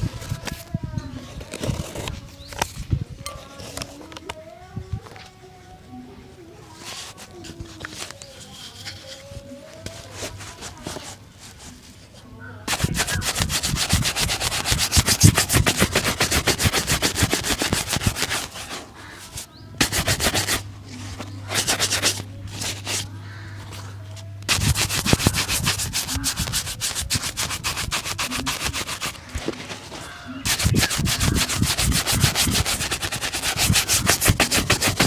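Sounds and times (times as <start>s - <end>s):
brush shining a shoe: 12.7s - 23.1s, 24.5s - 29.4s, 30.4s - 35.0s.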